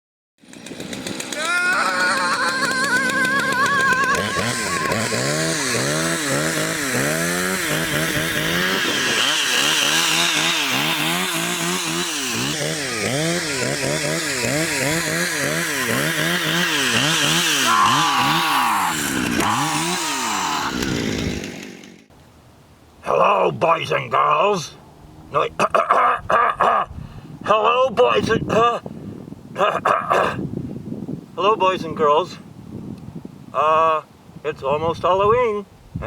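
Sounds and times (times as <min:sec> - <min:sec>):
chainsaw engine revving: 0:00.4 - 0:22.1.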